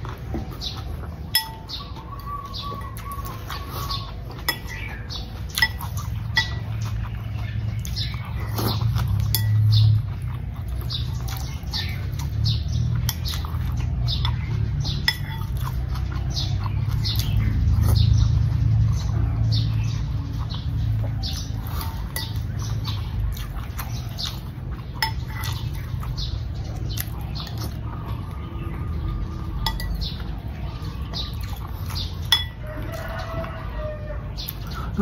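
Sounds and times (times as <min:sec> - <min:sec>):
chewing with wet mouth clicks: 0:00.0 - 0:35.0
metal spoon clinking glass bowl: 0:01.3 - 0:01.8, 0:05.6 - 0:06.8, 0:09.2 - 0:09.8, 0:15.1 - 0:15.6, 0:25.0 - 0:25.6, 0:29.6 - 0:30.2, 0:32.3 - 0:32.6.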